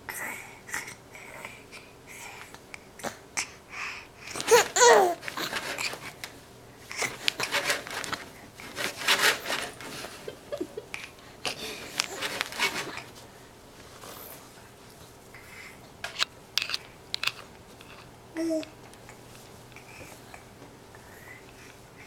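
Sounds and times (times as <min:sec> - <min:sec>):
baby babbling: 0:04.5 - 0:05.2, 0:18.4 - 0:18.7.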